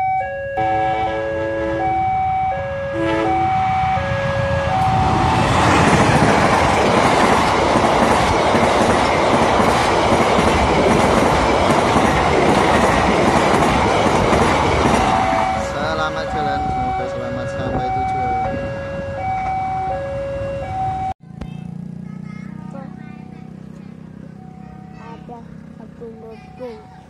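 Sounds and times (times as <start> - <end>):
level-crossing alarm chimes: 0.0 - 5.3, 15.1 - 21.2
passenger train rushing past: 0.0 - 21.1.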